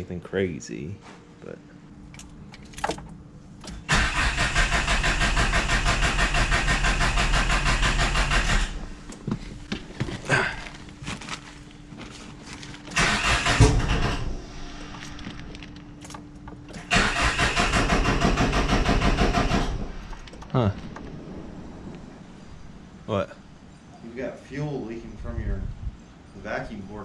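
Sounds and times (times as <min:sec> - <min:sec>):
engine cranking on starter: 0:03.7 - 0:08.9, 0:12.9 - 0:14.4, 0:16.7 - 0:20.5.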